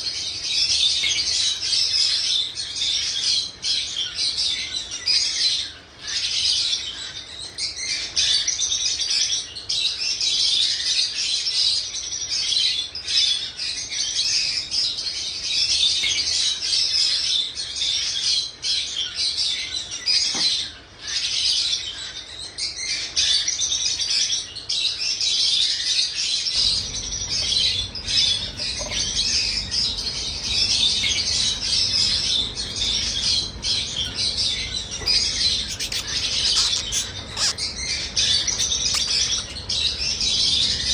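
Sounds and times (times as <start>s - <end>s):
birds chirping: 0.0s - 9.9s, 26.4s - 40.9s
faint low hum: 26.5s - 40.9s.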